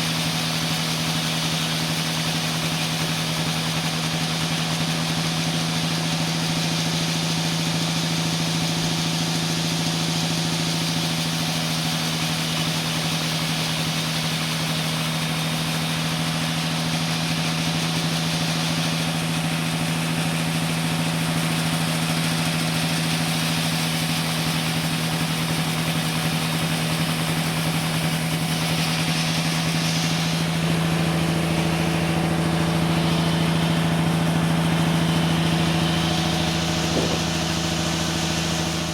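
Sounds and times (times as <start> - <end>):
sawmill machinery hum: 0.0 - 38.9
deep drone: 26.6 - 38.9
even hiss: 26.6 - 38.9.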